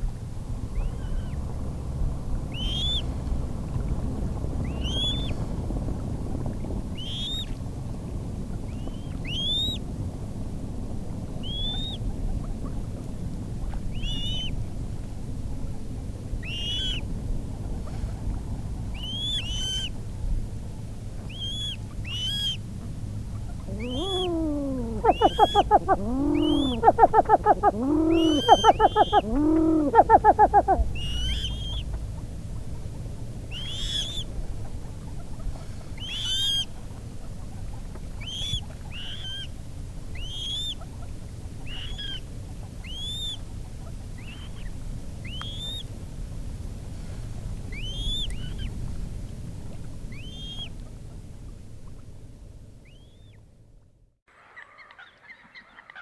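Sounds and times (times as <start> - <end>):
low background noise: 20.6 - 35.4
rapid pulsing lower calls: 23.6 - 31.6
coot calling high notes: 23.7 - 30.8.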